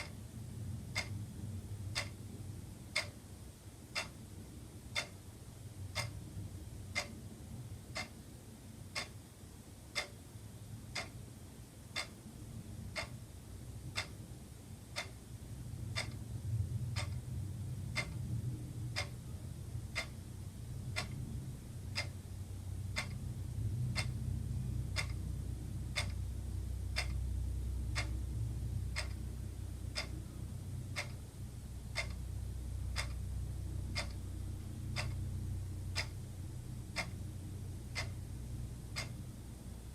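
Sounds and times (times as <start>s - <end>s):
wall clock ticking: 0.0s - 3.3s, 3.9s - 8.2s, 8.8s - 11.2s, 11.8s - 39.9s
low background rumble: 0.0s - 39.9s.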